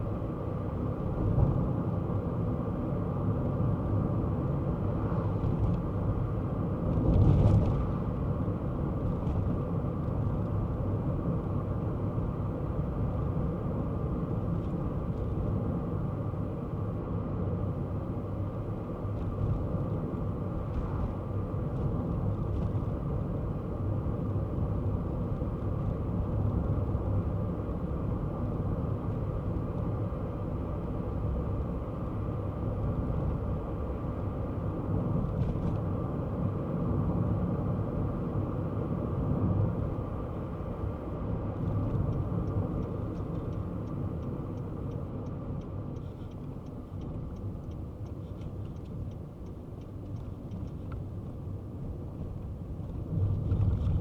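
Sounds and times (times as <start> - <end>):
car engine and road rumble: 0.0 - 54.0
faint regular ticking: 42.1 - 51.0.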